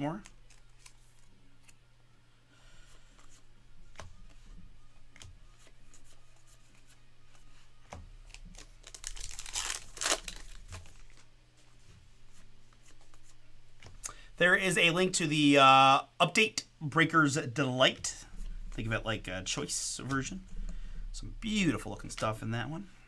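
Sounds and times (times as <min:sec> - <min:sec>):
soft clicks of cards handled: 0:00.2 - 0:01.8, 0:02.9 - 0:14.2
wrapper tearing and crinkling: 0:08.3 - 0:11.3.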